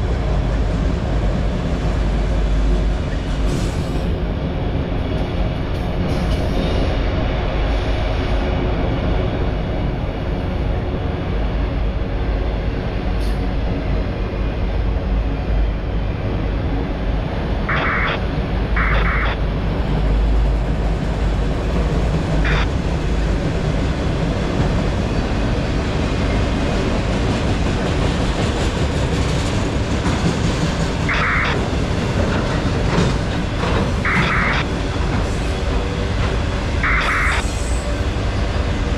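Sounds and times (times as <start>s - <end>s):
freight train rumbling past: 0.0s - 38.9s
short high-pitched noise bursts: 17.7s - 18.2s, 31.1s - 31.6s, 36.8s - 37.5s.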